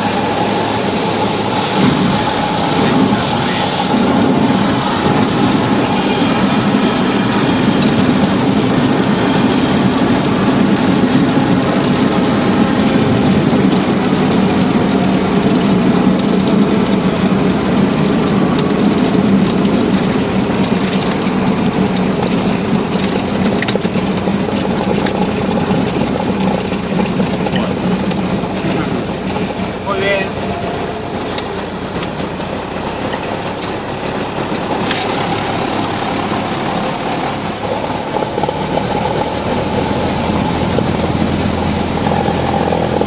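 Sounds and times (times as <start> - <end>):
airplane engine drone in cabin: 0.0 - 43.0.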